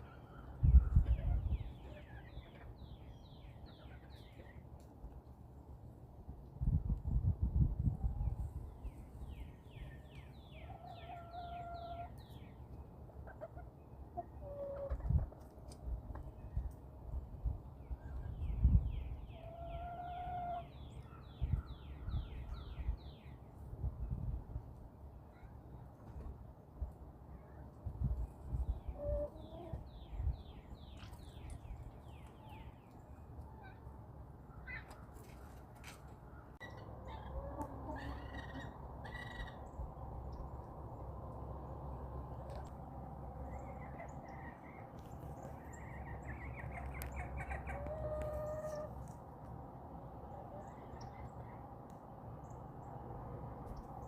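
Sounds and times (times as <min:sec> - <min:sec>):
chickens clucking low: 0:13.0 - 0:16.4, 0:28.6 - 0:30.2, 0:36.6 - 0:41.8, 0:46.0 - 0:49.0
hens calling: 0:36.6 - 0:39.6, 0:46.7 - 0:49.1.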